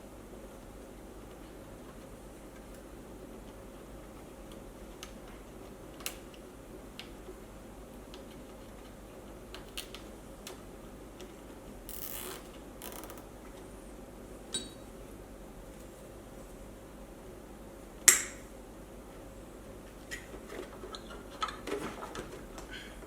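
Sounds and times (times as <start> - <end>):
low background hum: 0.0 - 23.0
clicks and taps of tools: 18.1 - 18.4.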